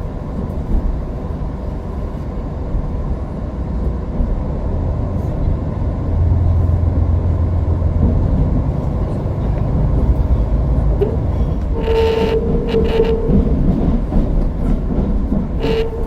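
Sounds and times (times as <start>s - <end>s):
diesel train running at speed: 0.0s - 16.0s.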